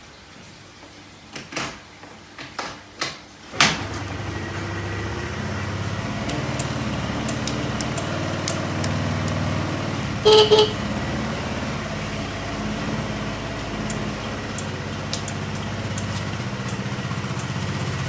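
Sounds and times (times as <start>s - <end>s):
scooter engine idling: 3.8s - 18.0s.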